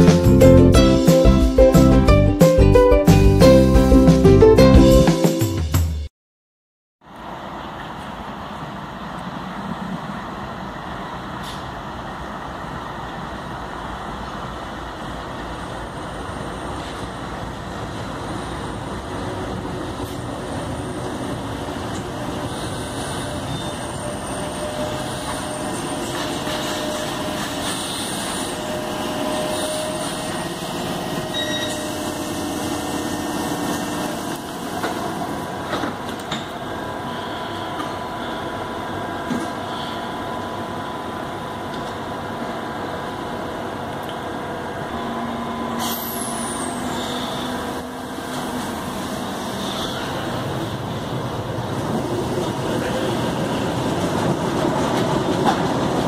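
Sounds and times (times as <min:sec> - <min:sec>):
train wheels rumbling on rail: 0:07.2 - 0:56.0
train motor whine: 0:21.9 - 0:50.8
high-pitched brake squeals: 0:22.4 - 0:34.1, 0:45.0 - 0:48.4, 0:49.4 - 0:50.2.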